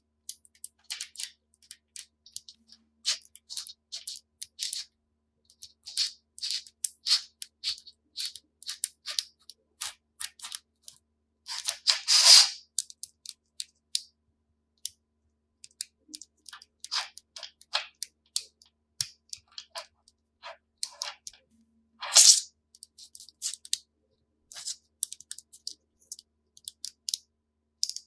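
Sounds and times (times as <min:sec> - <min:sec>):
plastic magnetic pieces clicking: 0:00.3 - 0:04.9, 0:05.5 - 0:14.1, 0:15.6 - 0:21.4, 0:24.5 - 0:27.2, 0:27.8 - 0:28.0.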